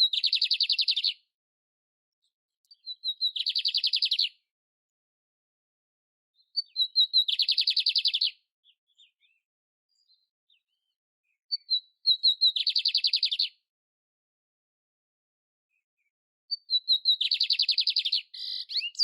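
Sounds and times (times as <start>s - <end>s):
canary singing trills: 0.0s - 1.2s, 2.6s - 4.4s, 6.4s - 13.6s, 16.5s - 19.0s.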